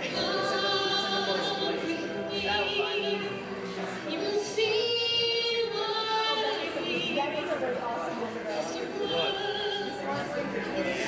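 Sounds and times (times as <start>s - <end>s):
woman singing with vibrato: 0.0s - 3.3s, 4.1s - 7.6s, 8.6s - 10.1s
backing music: 0.0s - 11.0s.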